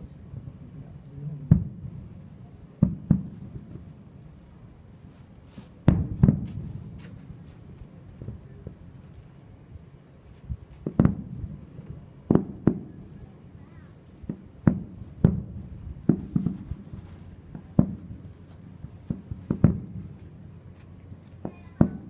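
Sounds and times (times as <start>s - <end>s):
firework shells booming: 1.4s - 2.1s, 2.8s - 3.9s, 5.8s - 8.8s, 10.8s - 13.2s, 14.1s - 20.6s, 21.4s - 22.0s.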